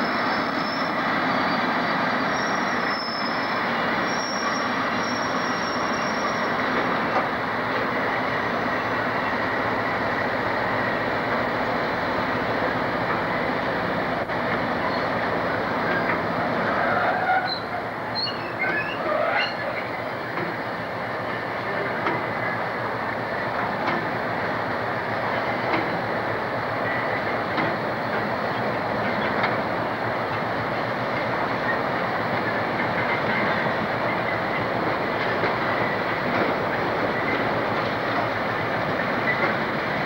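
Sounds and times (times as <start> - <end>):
freight train rumble: 0.0 - 40.0
faint wheel squeals: 0.1 - 6.8, 16.7 - 20.0
wheels clicking over rail joints: 6.0 - 8.2, 14.1 - 40.0.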